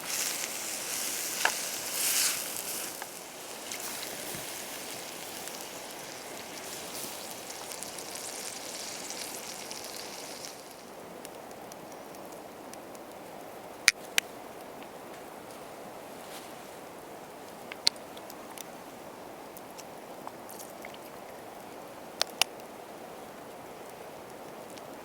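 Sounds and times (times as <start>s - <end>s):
food sizzling in a pan: 0.0s - 11.0s
faint crackles: 0.0s - 11.6s.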